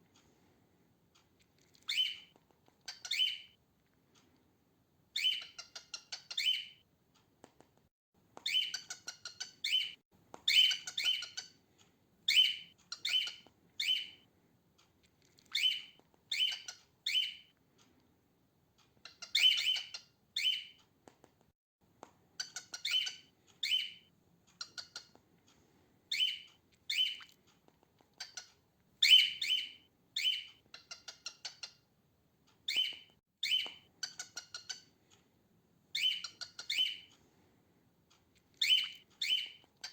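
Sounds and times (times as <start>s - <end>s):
cockatiel chirping: 1.7s - 3.6s, 5.2s - 6.8s, 8.4s - 11.6s, 12.3s - 14.2s, 15.4s - 17.5s, 19.0s - 20.8s, 22.4s - 25.2s, 26.1s - 27.4s, 28.1s - 31.9s, 32.6s - 35.0s, 35.9s - 37.1s, 38.6s - 39.9s.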